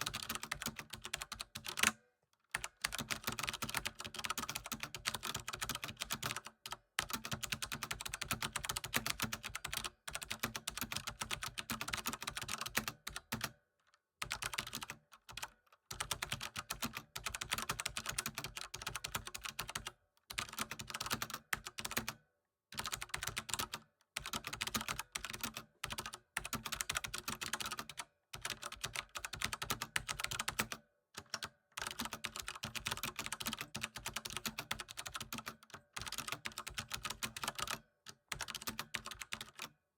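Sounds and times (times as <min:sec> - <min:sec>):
computer keyboard typing: 0:00.0 - 0:13.6, 0:14.2 - 0:22.2, 0:22.8 - 0:39.7.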